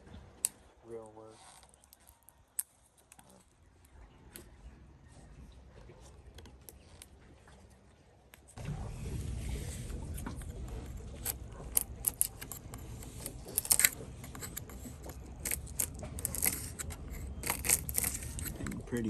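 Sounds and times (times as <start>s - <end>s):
steady low rumble: 8.6s - 19.0s
scraper scraping paint off wood: 9.4s - 18.9s.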